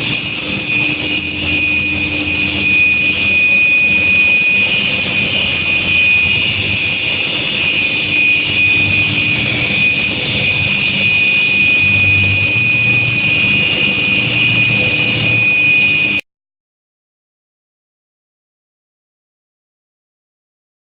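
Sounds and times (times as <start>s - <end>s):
furnace high-pitched whine: 0.0s - 16.2s
noisy hum: 0.0s - 16.2s.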